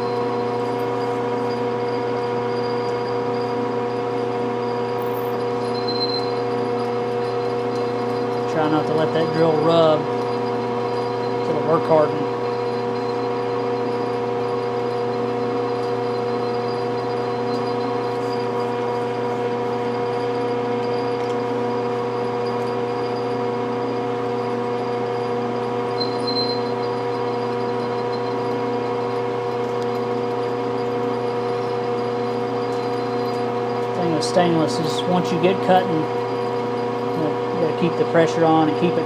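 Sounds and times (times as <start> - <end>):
milling machine motor hum: 0.0 - 39.0
high squeak: 5.6 - 6.4, 26.0 - 26.9.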